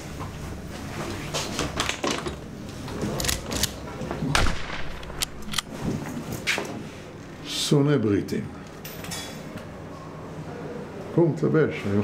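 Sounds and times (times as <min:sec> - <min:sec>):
footsteps across a room: 0:00.0 - 0:01.8, 0:05.7 - 0:07.3.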